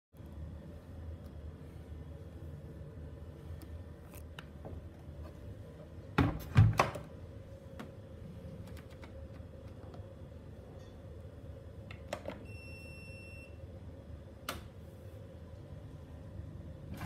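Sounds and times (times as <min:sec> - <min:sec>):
washing machine door thudding shut: 0:06.2 - 0:07.1.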